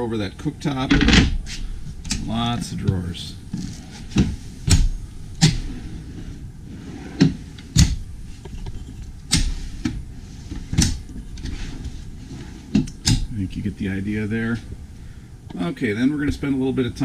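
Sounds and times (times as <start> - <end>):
drawers and cabinet doors shutting: 0.8 - 8.1, 9.3 - 13.3.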